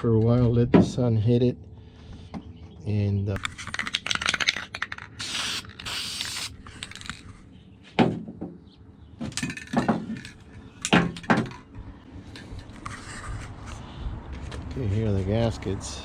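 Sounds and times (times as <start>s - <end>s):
objects knocking and clunking: 7.9s - 8.6s, 9.2s - 13.0s.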